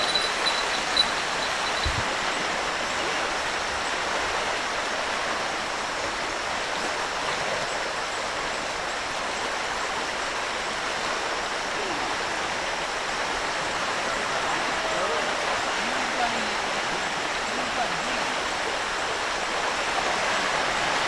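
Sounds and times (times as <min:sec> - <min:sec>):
river rushing in flood: 0:00.0 - 0:21.0.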